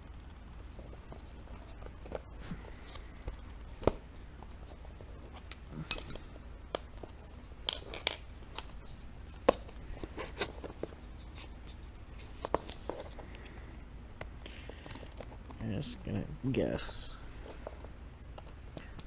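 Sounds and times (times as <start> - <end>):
metallic clink: 5.8 - 6.2
tools clicking and tapping: 5.8 - 6.2.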